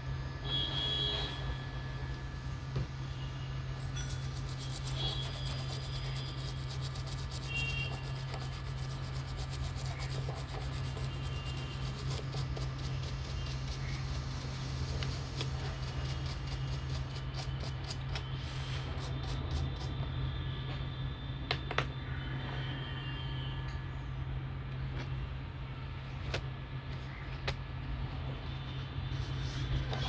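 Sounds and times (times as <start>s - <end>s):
steady low hum: 0.0s - 30.0s
tool scratching circuit board: 3.8s - 20.0s.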